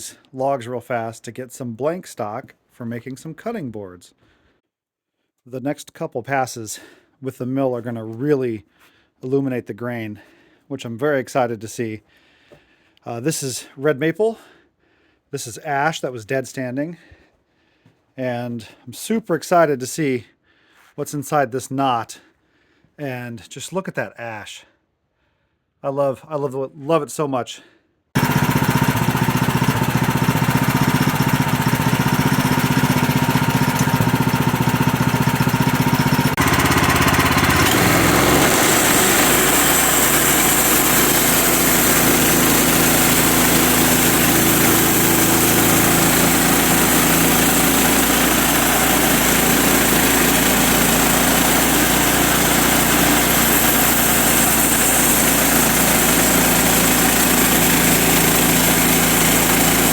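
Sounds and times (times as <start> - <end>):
sawmill engine milling a log: 28.2 - 59.9.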